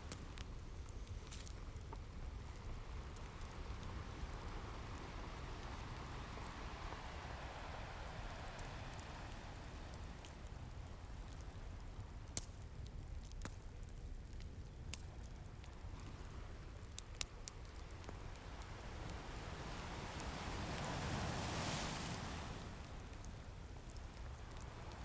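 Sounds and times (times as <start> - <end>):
wood fire crackles: 0.0 - 25.0
ocean waves rushing: 4.1 - 10.1, 18.2 - 23.4.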